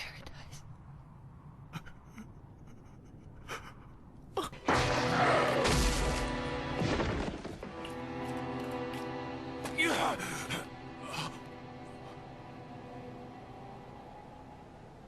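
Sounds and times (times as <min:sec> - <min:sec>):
dramatic orchestral music: 0:04.6 - 0:13.9.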